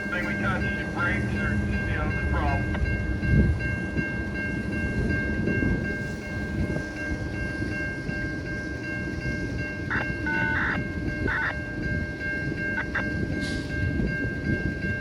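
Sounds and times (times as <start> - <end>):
freight train rumbling past: 0.0 - 15.0
steady high-pitched tone: 4.0 - 13.4.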